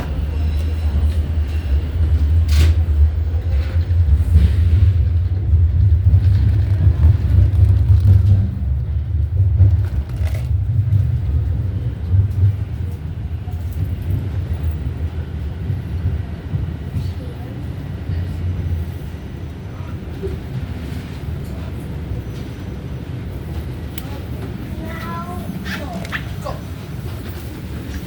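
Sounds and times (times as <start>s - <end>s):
subway train rumble: 0.0s - 28.0s.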